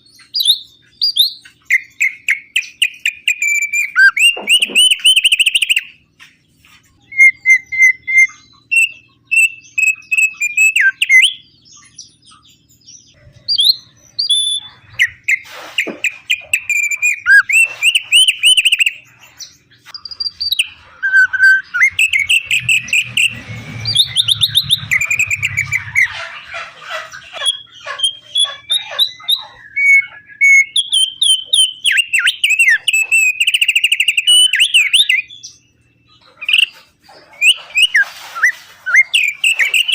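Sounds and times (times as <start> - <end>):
songbird singing trills: 0.0 - 38.0, 38.9 - 39.9.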